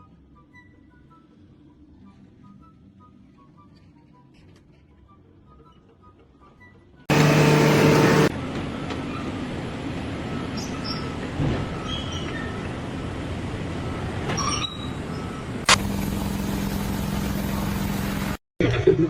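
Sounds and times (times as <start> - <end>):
loud horn-like blast: 7.1 - 8.3
rolling machine noise: 7.1 - 8.3, 15.6 - 18.4.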